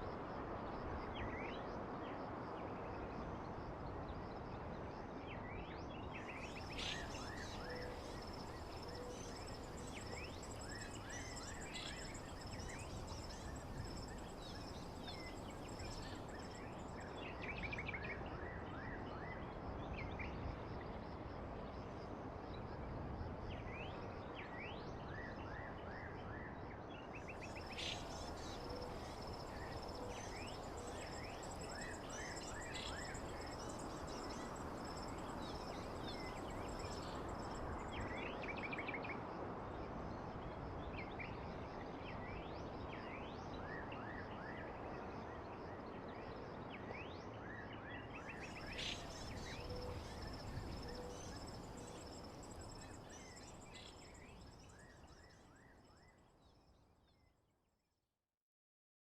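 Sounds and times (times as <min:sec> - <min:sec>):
steady background hiss: 0:06.2 - 0:17.9, 0:27.3 - 0:38.6, 0:48.2 - 0:54.7.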